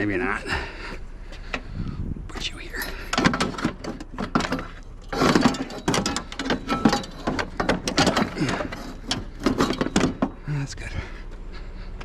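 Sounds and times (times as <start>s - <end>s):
scrap items knocking and clattering: 3.1s - 10.4s.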